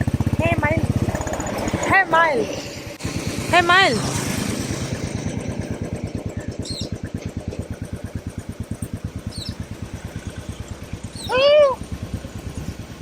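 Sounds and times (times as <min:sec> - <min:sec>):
motorcycle engine idling: 0:00.0 - 0:13.0
faint bird chirps: 0:06.4 - 0:07.1, 0:09.2 - 0:11.4.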